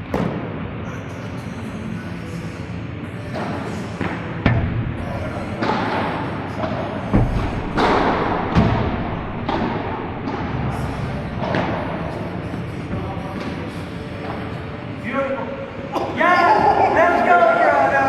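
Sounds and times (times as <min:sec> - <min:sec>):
steady background noise: 0:00.0 - 0:18.0
rackets hitting ball: 0:03.3 - 0:15.9
ball bouncing: 0:04.5 - 0:14.4.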